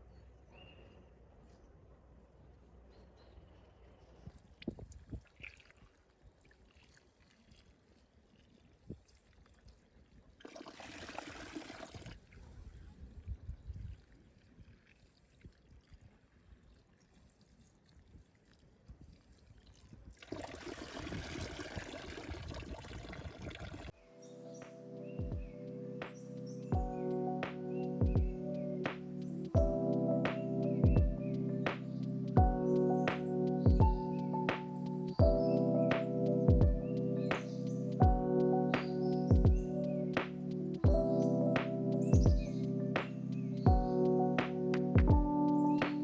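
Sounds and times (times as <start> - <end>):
water pouring: 4.5 - 24.0.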